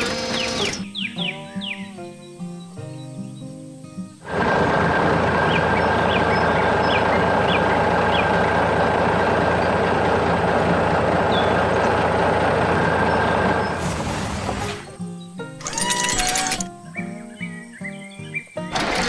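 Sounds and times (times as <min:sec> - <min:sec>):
heavy machine running: 0:00.0 - 0:00.8, 0:04.2 - 0:15.0, 0:18.8 - 0:19.0.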